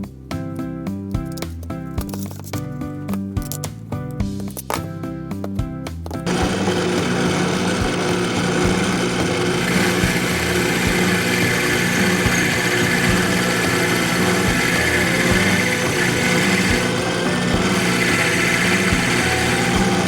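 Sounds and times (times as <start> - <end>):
background music: 0.0 - 20.0
electric power tool motor: 6.3 - 20.0.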